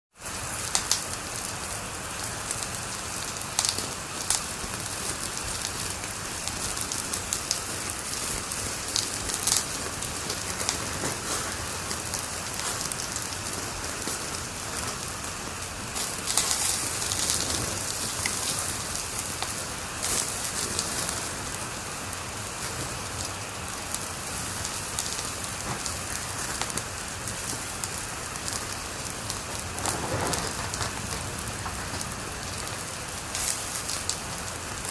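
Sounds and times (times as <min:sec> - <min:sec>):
wood fire crackling and popping: 0:00.2 - 0:34.9.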